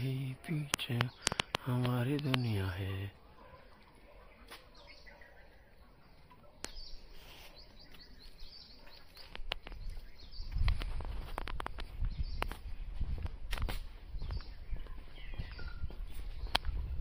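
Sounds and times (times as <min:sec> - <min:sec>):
small birds chirping: 0:00.0 - 0:17.0
footsteps: 0:07.1 - 0:17.0.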